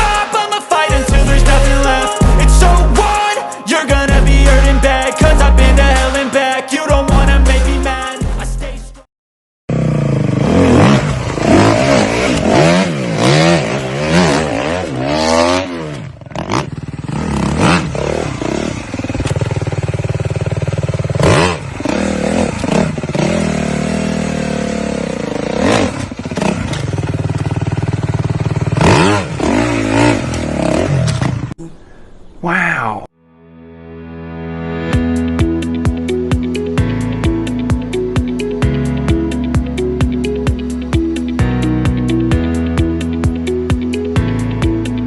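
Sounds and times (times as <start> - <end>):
dirt bike engines revving: 9.7 - 31.5.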